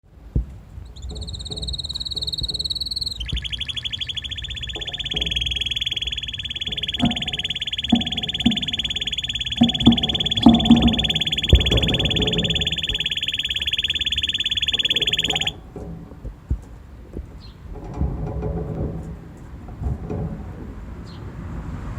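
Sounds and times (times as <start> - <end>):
canary singing trills: 0.8 - 15.6.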